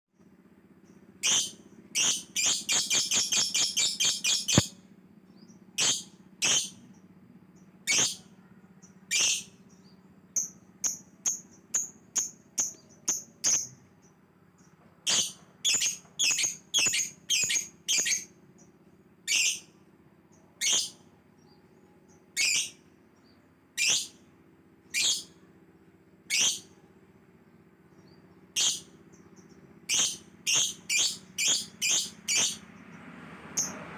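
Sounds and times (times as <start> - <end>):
faint low hum: 0.2 - 33.9
lovebird chirping: 1.2 - 7.0, 7.6 - 18.4, 19.2 - 24.2, 24.9 - 25.4, 26.3 - 26.8, 28.0 - 32.9.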